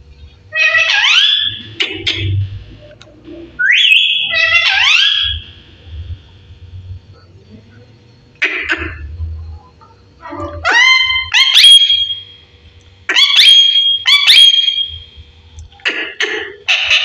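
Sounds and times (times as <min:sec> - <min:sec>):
parrot calling shrilly: 0:00.5 - 0:02.3, 0:03.6 - 0:05.4, 0:10.5 - 0:12.2, 0:13.1 - 0:15.0, 0:16.7 - 0:17.0.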